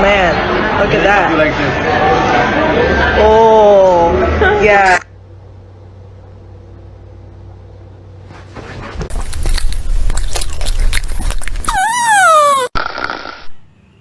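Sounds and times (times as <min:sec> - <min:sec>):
dog chewing food wetly: 0:09.1 - 0:11.8.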